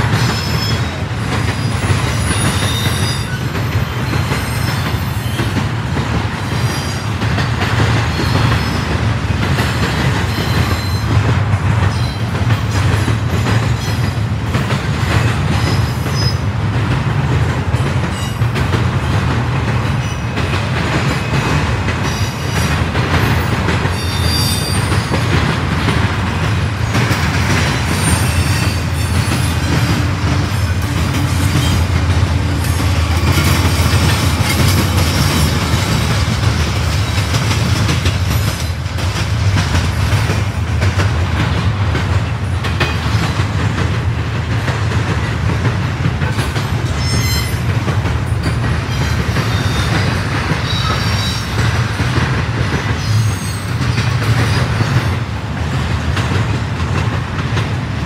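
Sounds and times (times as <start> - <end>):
freight train rumbling past: 0.0 - 58.0
high-pitched wheel squeals: 24.0 - 24.9.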